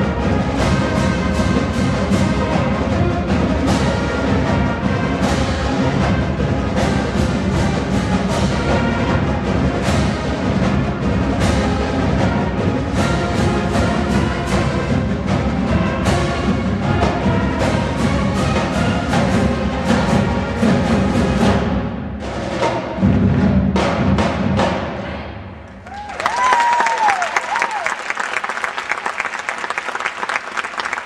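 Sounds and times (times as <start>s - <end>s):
marching band brass and woodwinds: 0.0s - 23.8s
steady drum beat: 0.0s - 25.1s.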